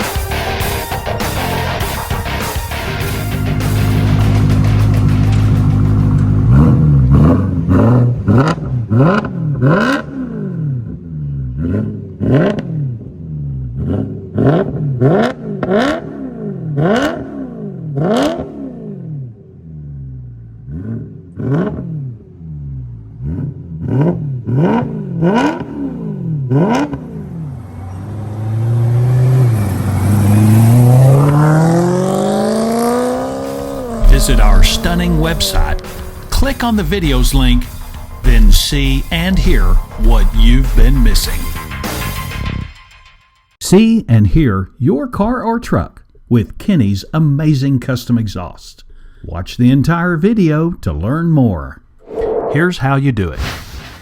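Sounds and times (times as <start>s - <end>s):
car engine revving: 0.0s - 42.6s.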